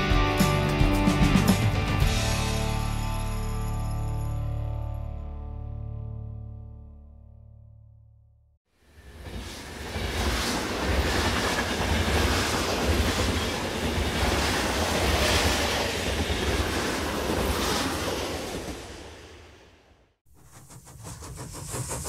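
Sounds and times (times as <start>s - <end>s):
train rumbling on track: 8.9s - 19.6s, 20.3s - 22.0s.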